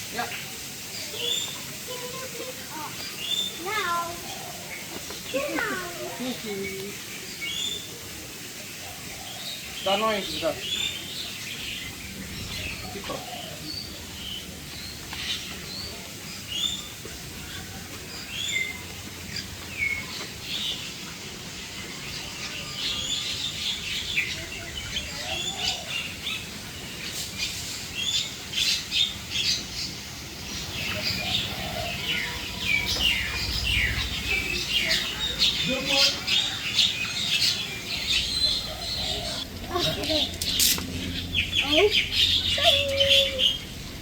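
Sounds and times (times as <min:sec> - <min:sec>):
birds chirping and whistling: 0:09.0 - 0:44.0.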